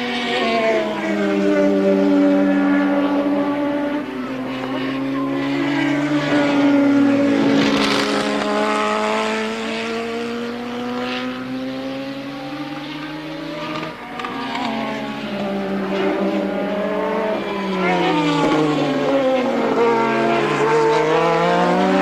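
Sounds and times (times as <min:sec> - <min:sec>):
racing car engines: 0:00.0 - 0:22.0
racing car passing close: 0:00.0 - 0:22.0.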